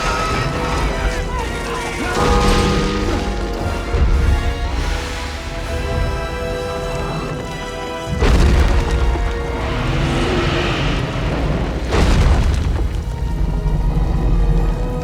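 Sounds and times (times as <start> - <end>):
orchestral score: 0.0 - 15.0.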